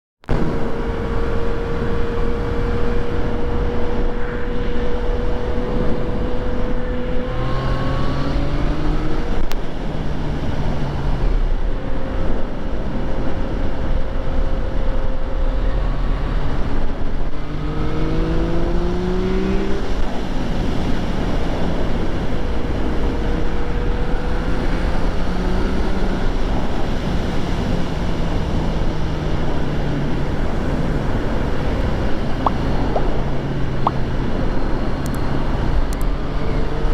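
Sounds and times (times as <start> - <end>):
motorcycle engine accelerating: 0.2 - 36.9
wind rushing over microphone: 0.2 - 36.9.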